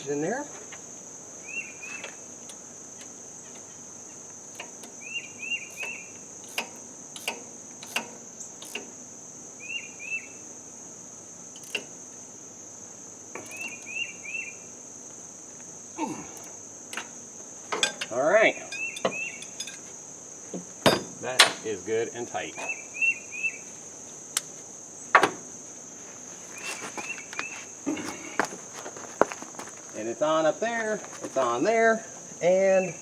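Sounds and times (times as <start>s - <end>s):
insect drone: 0.0s - 33.0s
bird chirping: 1.4s - 2.3s, 5.0s - 6.2s, 9.6s - 10.4s, 13.5s - 14.7s, 18.8s - 19.6s, 22.6s - 23.8s, 26.0s - 30.0s
hand tools clinking on metal: 18.7s - 19.9s, 26.2s - 30.1s, 30.8s - 31.4s.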